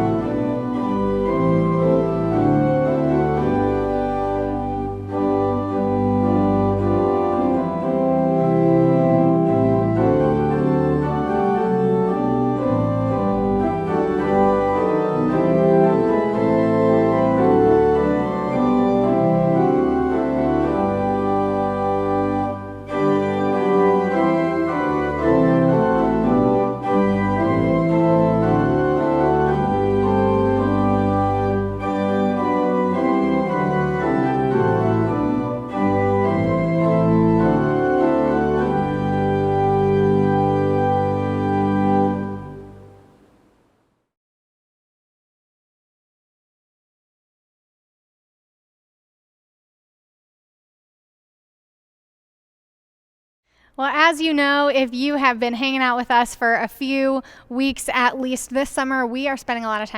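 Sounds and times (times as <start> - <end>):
organ chords: 0.0 - 43.8.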